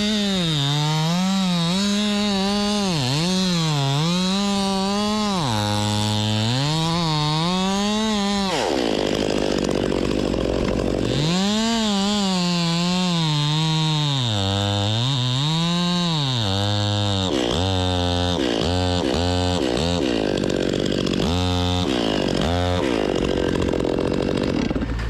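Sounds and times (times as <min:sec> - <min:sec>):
chainsaw cutting wood: 0:00.0 - 0:25.0
electric chainsaw motor revving: 0:00.0 - 0:25.0.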